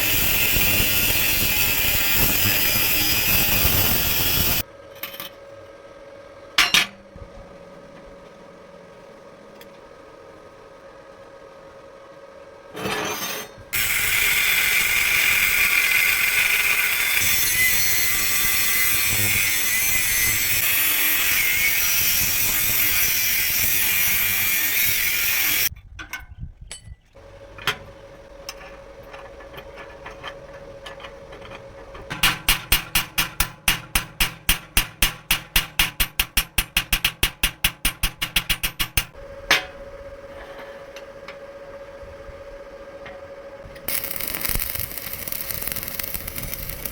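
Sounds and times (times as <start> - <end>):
power tool hissing on metal: 0.0 - 4.6, 13.8 - 25.7, 43.9 - 46.9.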